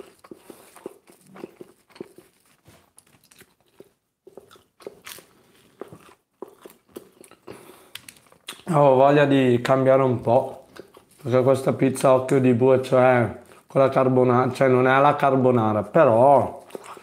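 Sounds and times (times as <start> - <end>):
man chewing crunchy food: 0.0 - 8.7, 10.2 - 11.8, 13.4 - 13.8, 16.4 - 17.0.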